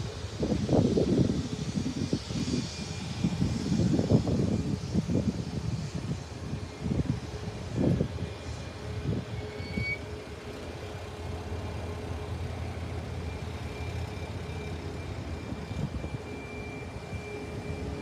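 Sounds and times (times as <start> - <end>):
thin high whine: 9.3 - 10.2.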